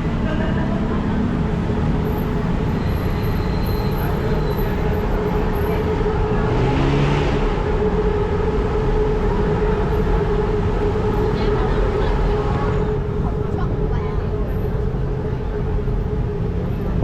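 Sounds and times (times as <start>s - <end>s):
city road traffic: 0.0s - 17.0s
vehicle passing close by: 6.2s - 7.8s.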